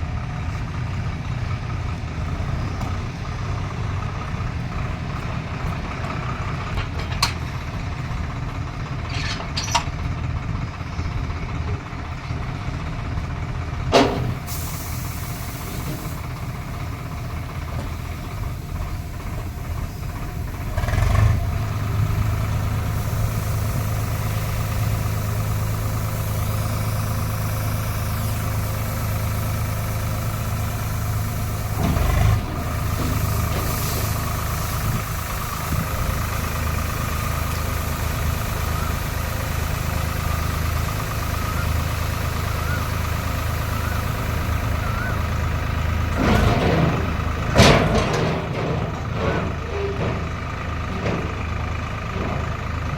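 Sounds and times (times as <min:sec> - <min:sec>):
combine harvester engine running: 0:00.0 - 0:52.9
loud bumps: 0:46.1 - 0:51.5.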